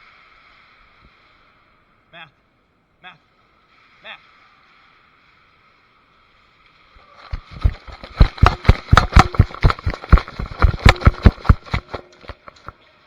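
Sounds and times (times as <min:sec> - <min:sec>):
sharp clacks and knocks: 0:07.3 - 0:12.7.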